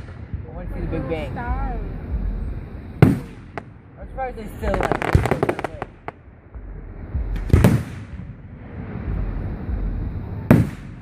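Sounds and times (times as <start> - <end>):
fireworks crackling: 0.0 - 6.3, 7.2 - 11.0
fireworks boom rumbling: 0.0 - 11.0
fireworks sharp pop: 7.4 - 8.3, 10.5 - 11.0.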